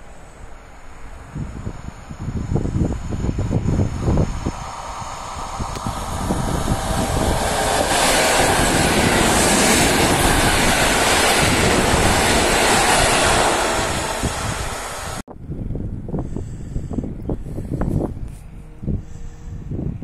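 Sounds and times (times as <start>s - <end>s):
train wheels rumbling on rails: 0.0s - 15.3s.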